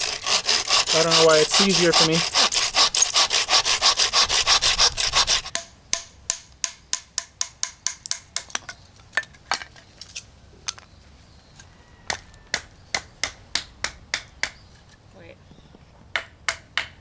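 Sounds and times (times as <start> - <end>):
hand saw cutting wood: 0.0 - 5.6.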